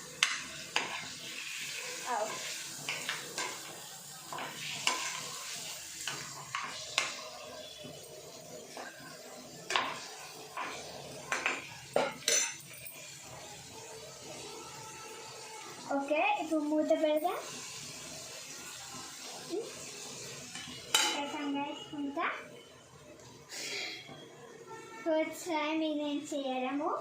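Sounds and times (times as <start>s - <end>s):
frying sizzle: 0.0s - 27.0s
spoon scraping a frying pan: 0.2s - 7.4s, 9.7s - 13.2s.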